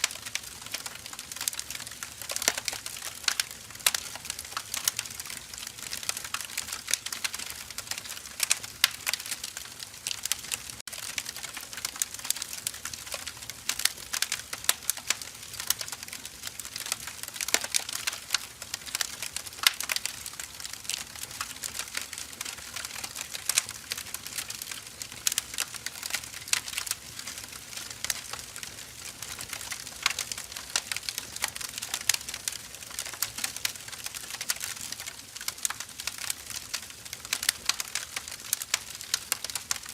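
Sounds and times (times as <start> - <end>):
firewood crackling: 0.0 - 39.9.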